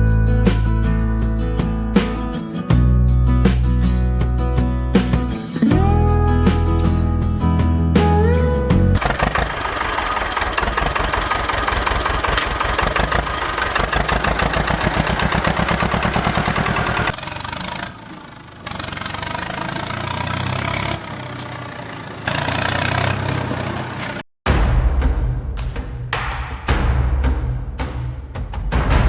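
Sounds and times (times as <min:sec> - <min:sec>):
small engine chugging: 0:09.0 - 0:24.2.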